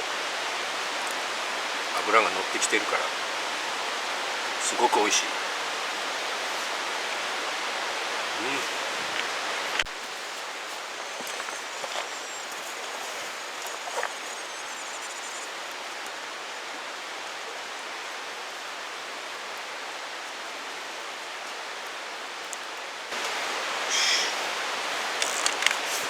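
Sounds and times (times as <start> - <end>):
mountain stream rushing: 0.0 - 26.0
faint clicks: 25.1 - 26.0.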